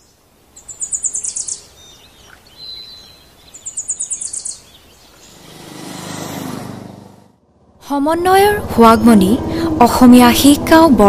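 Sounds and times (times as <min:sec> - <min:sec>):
bird trills: 0:00.6 - 0:05.6.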